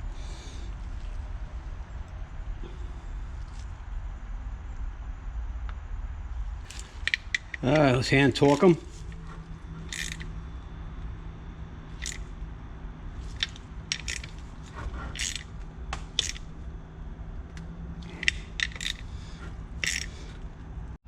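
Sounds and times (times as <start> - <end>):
steady low hum: 0.0 - 21.0
metallic tool clicks and clinks: 6.7 - 9.1, 9.8 - 10.4, 12.0 - 12.3, 13.2 - 16.5, 18.0 - 19.2, 19.8 - 20.4.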